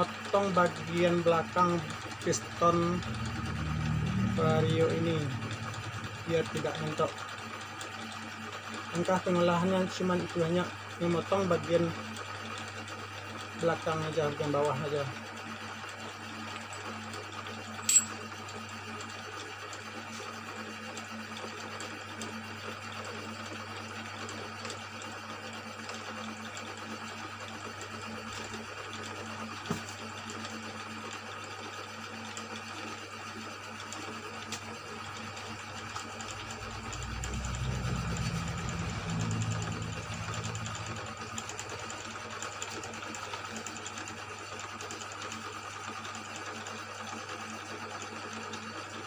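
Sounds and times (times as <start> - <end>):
electric motor humming: 0.0 - 11.9, 34.0 - 43.6
rough low sound: 36.0 - 41.4.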